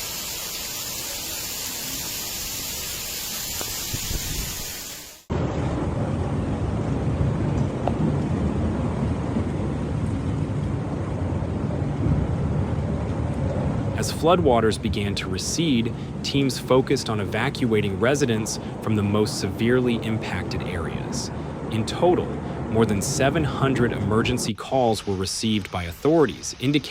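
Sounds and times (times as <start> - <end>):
heavy rain hiss: 0.0 - 5.3, 13.9 - 26.9
floodwater rushing rumble: 0.0 - 26.9
wind on microphone: 3.4 - 24.5.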